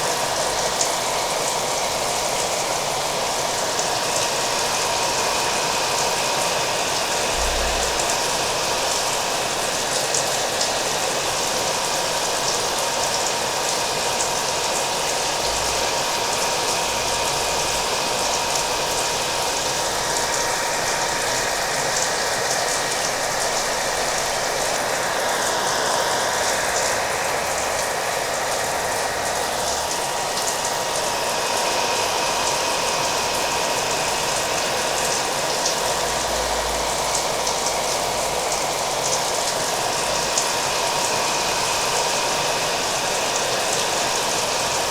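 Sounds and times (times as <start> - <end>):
hair dryer running: 0.0 - 44.9
rain falling: 14.4 - 44.9.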